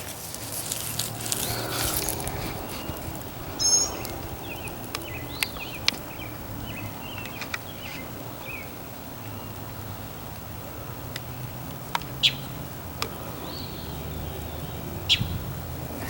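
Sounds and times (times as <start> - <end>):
birds chirping: 0.0 - 16.0
loud high bird call: 2.7 - 5.8.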